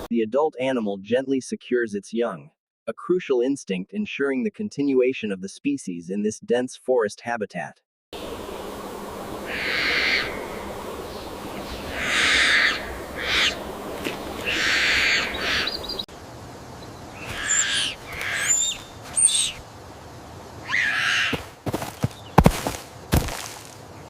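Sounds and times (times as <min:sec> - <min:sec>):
harsh screeching bird calls: 0:09.4 - 0:16.1, 0:16.8 - 0:19.6, 0:20.6 - 0:22.5.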